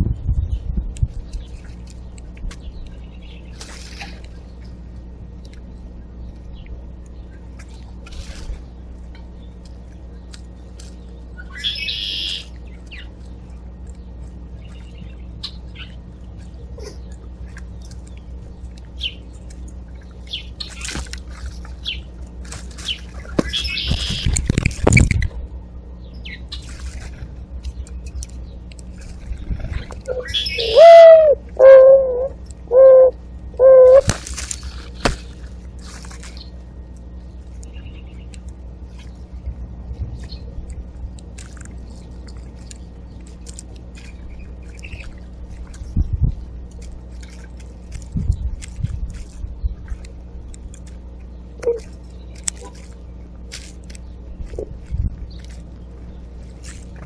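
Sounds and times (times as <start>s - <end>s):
dove cooing: 30.1s - 34.1s
small birds chirping: 30.1s - 35.1s.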